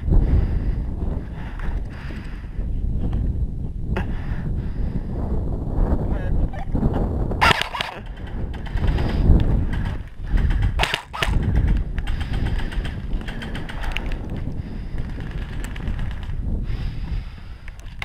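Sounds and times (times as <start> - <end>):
wind rumble on microphone: 0.0 - 18.0
airsoft gun snaps: 7.4 - 8.0, 10.8 - 11.4
faint rapid clicking: 7.6 - 16.4.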